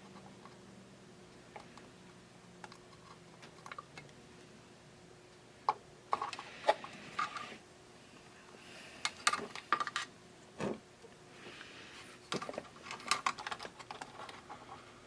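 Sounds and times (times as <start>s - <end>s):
faint steady hum: 0.0s - 15.0s
small tools clicking and tapping: 12.3s - 14.4s.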